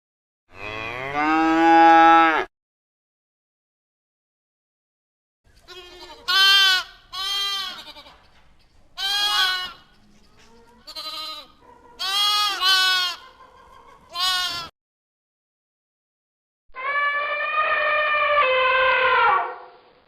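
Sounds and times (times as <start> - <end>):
sheep or goat bleating: 5.6 - 8.2, 9.0 - 9.9, 10.8 - 13.3, 14.1 - 14.7.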